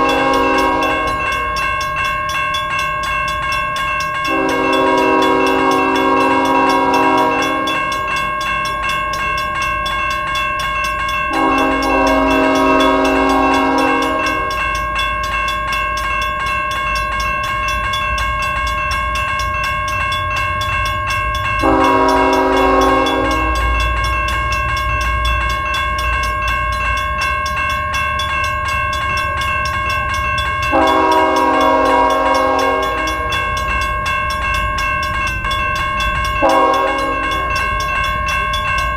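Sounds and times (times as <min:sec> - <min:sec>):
locomotive air horn: 0:00.0 - 0:01.5, 0:04.3 - 0:07.9, 0:11.3 - 0:14.5, 0:21.6 - 0:23.8, 0:30.7 - 0:33.3, 0:36.4 - 0:37.4
freight train rumbling: 0:00.0 - 0:38.9.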